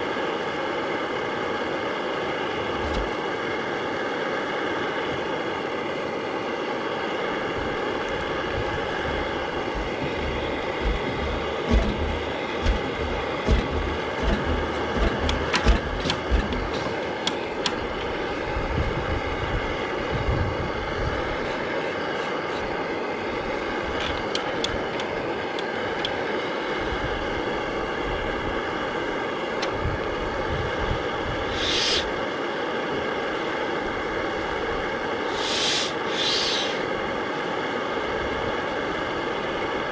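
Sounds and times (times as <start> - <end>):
diesel engine running: 7.7 - 32.2
uneven low thumps: 8.6 - 18.1.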